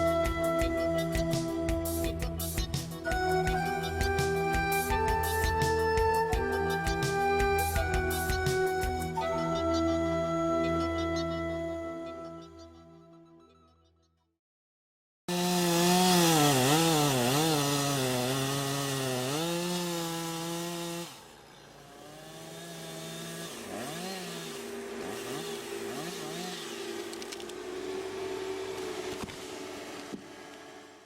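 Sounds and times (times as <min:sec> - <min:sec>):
chainsaw revving: 0:15.3 - 0:31.0
quieter engine rising and falling: 0:16.0 - 0:31.0.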